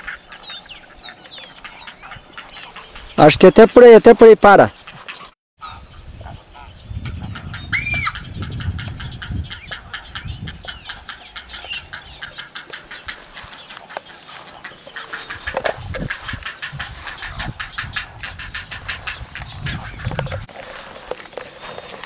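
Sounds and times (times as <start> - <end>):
birds clicking and chattering: 0.0 - 22.0
loud harsh bird call: 7.4 - 20.0.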